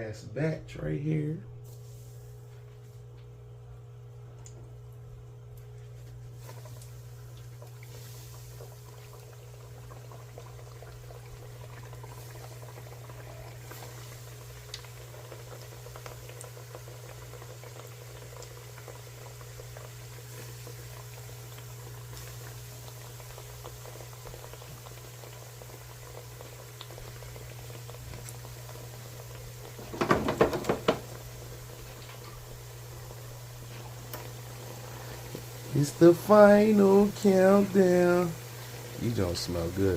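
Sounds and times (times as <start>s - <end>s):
dough deep-frying in oil: 1.6s - 39.9s
loud rattling knocks: 29.8s - 31.1s.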